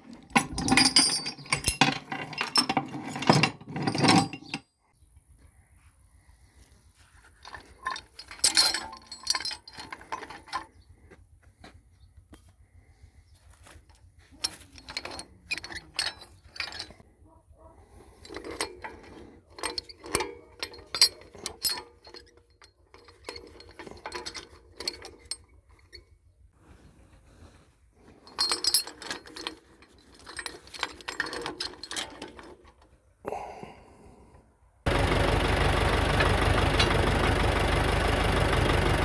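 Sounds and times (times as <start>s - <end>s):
metal tools clinking and clanking: 0.0s - 4.8s, 7.3s - 10.9s, 13.6s - 17.2s, 17.8s - 26.2s, 28.0s - 33.0s, 34.9s - 38.0s.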